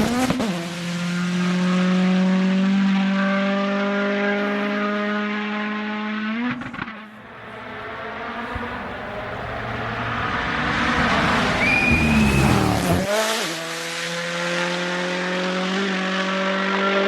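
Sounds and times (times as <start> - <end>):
rally car engine passing: 0.0 - 17.0
high-pitched squeal: 7.2 - 13.2.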